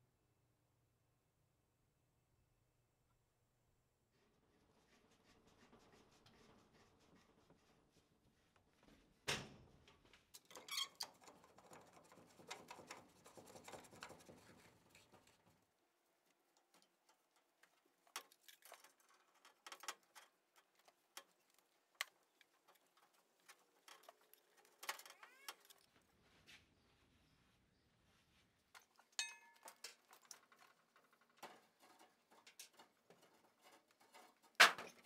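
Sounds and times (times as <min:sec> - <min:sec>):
rapid ticks and rattles: 0:10.4 - 0:15.6, 0:16.2 - 0:25.9, 0:28.7 - 0:35.0.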